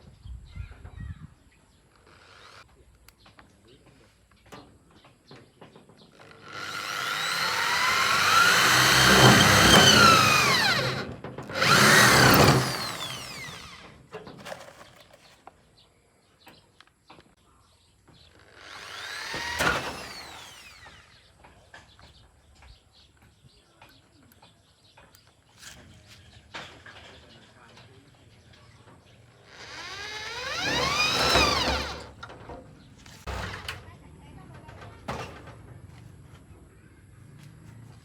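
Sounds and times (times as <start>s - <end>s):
electric power tool whining: 6.2s - 14.8s, 18.4s - 21.4s, 29.4s - 32.4s.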